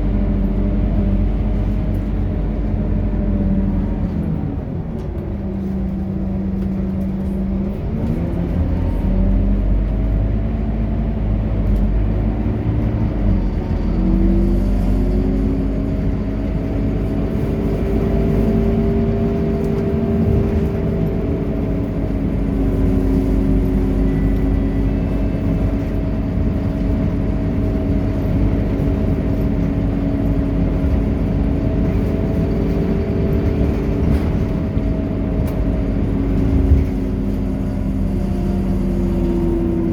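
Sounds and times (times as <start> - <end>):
bus engine accelerating: 0.0 - 39.9.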